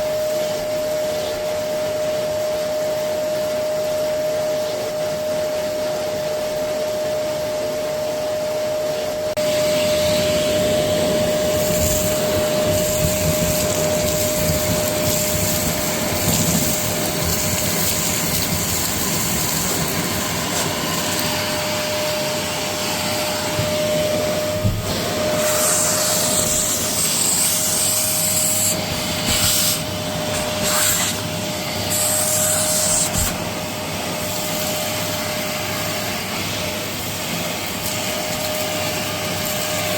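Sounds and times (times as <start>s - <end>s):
vacuum cleaner motor whine: 0.0s - 39.9s
high hissing: 9.6s - 34.7s.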